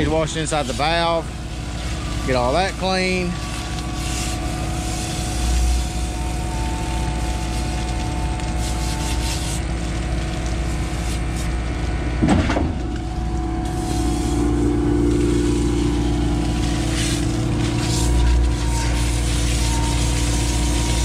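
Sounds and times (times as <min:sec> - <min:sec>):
water hosing out valve: 0:00.0 - 0:11.5, 0:13.6 - 0:21.0
truck engine running: 0:00.0 - 0:21.0.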